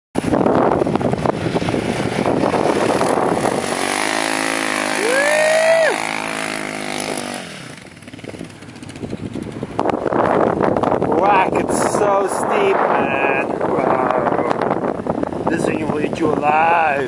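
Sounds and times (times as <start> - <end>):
motorcycle engine revving hard: 0.2 - 11.2
rough wind noise: 0.2 - 17.0.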